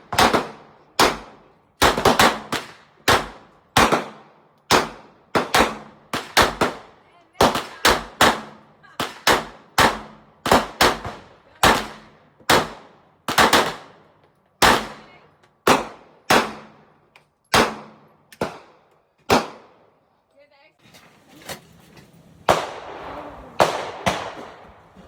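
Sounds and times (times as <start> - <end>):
gunshots with echo: 22.4 - 25.0.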